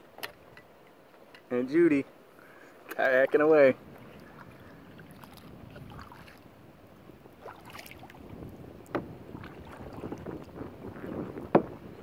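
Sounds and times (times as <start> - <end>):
paddle splashing water: 2.4 - 12.0.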